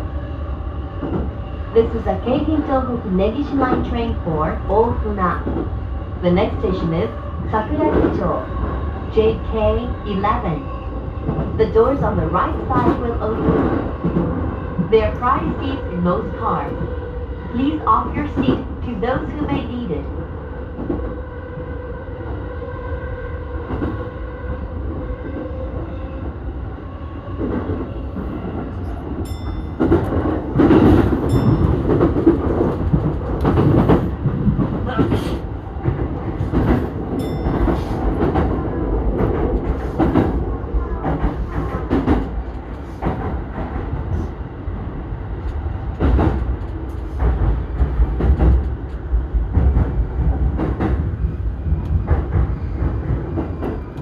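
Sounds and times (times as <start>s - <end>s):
train rumbling running noise: 0.0s - 54.0s.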